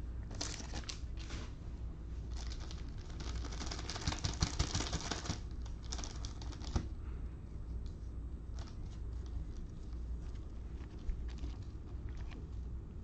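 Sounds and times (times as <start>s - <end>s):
cards and wrappers crinkling: 0.3s - 1.1s, 2.3s - 6.8s.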